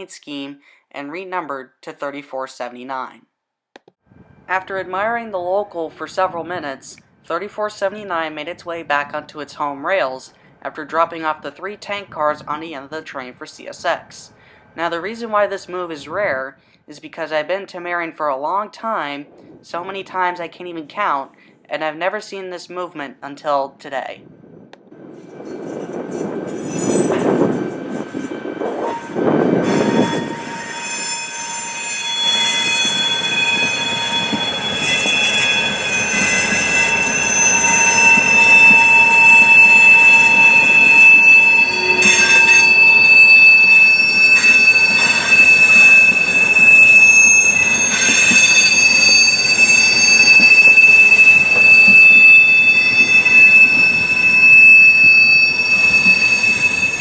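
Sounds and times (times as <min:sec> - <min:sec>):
train wheels squealing: 0:25.2 - 0:57.0.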